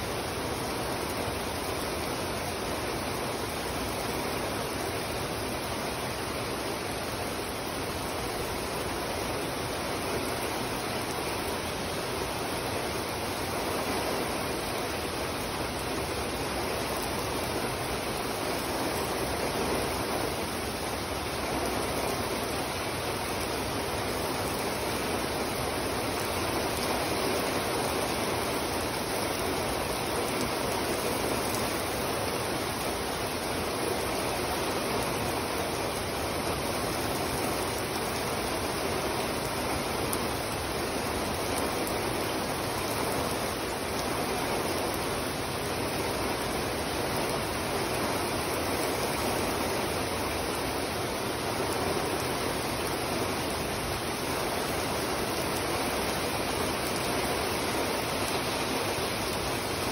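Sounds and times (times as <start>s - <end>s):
heavy rain on pavement: 0.0s - 59.9s.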